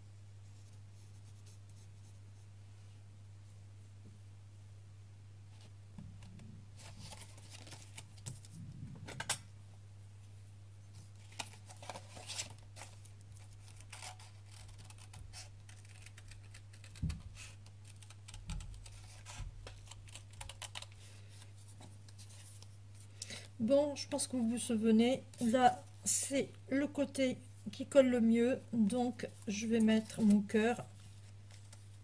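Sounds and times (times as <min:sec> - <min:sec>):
steady low hum: 0:00.0 - 0:32.0
scratching and clicking of cardboard: 0:11.2 - 0:22.6.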